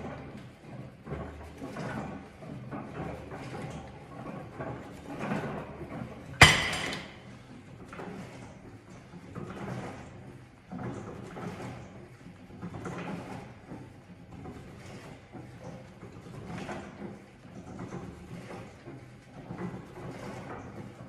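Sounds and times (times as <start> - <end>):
weight stack sliding and clunking: 4.6 - 7.5.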